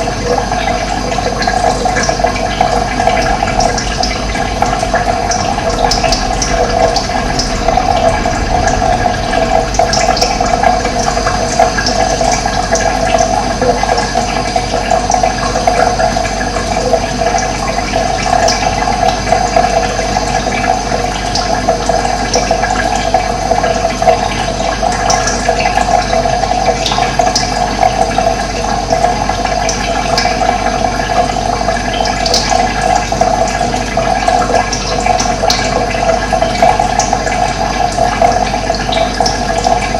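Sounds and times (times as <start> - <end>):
water rushing: 0.0 - 26.9.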